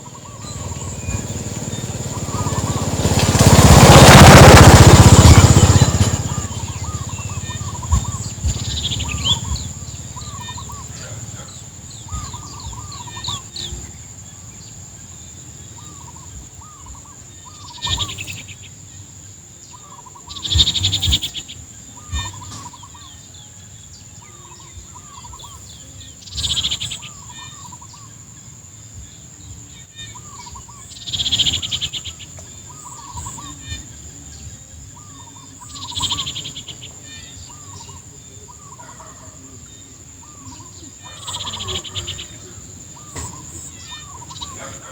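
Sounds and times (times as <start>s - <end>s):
high-pitched insect drone: 0.0s - 10.9s.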